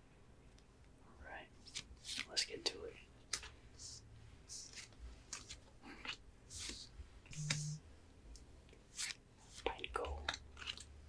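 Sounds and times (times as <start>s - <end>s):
brief low hum: 7.3s - 7.8s.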